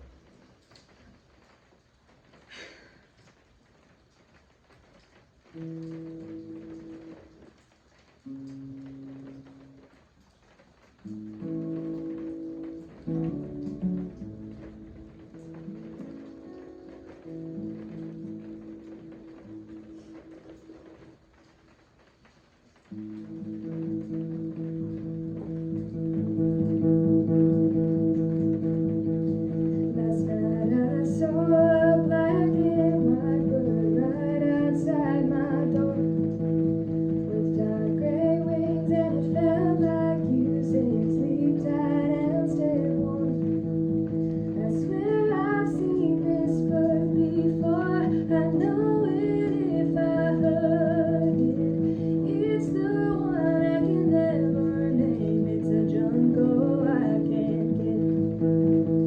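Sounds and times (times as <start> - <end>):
guitar playing: 11.0 - 21.0, 22.9 - 59.0
woman singing: 29.8 - 36.4, 37.3 - 43.9, 44.5 - 58.6.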